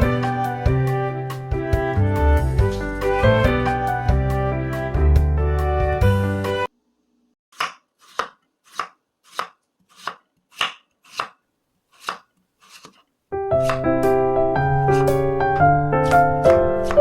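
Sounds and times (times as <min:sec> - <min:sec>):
piano music: 0:00.0 - 0:06.7, 0:13.3 - 0:17.0
knife chopping on cutting board: 0:07.6 - 0:13.0, 0:13.6 - 0:13.9, 0:14.8 - 0:17.0.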